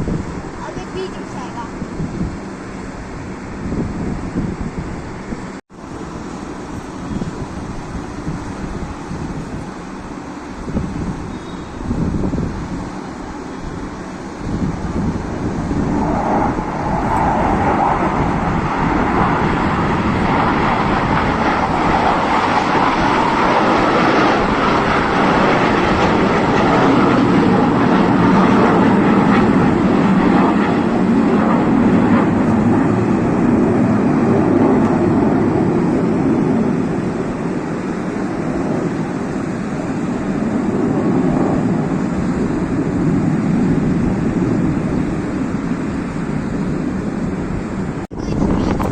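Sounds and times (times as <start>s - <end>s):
jet aircraft flying past: 0.0s - 48.9s.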